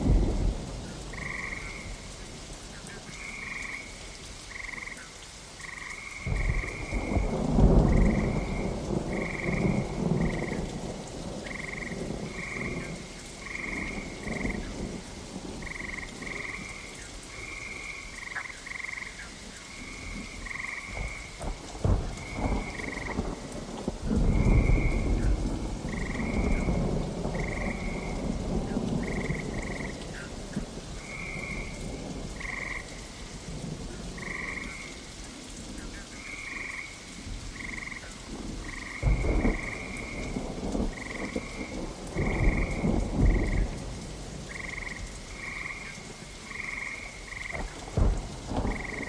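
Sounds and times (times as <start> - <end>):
frogs croaking: 0.0 - 49.0
rain: 0.0 - 49.0
thunder: 6.2 - 15.0, 20.4 - 32.9, 38.5 - 45.8, 46.5 - 49.0.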